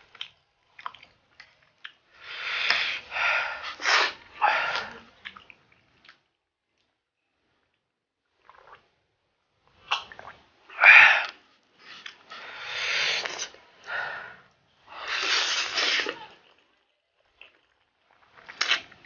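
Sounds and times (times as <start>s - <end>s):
hissing breaths: 2.2s - 5.0s, 10.8s - 16.2s
sneeze-like burst: 3.7s - 5.0s, 15.0s - 16.5s.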